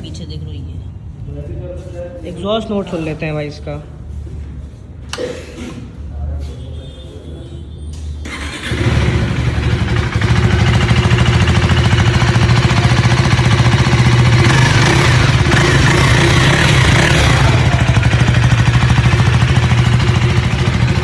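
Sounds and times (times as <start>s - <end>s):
motorcycle engine idling: 8.2s - 21.0s.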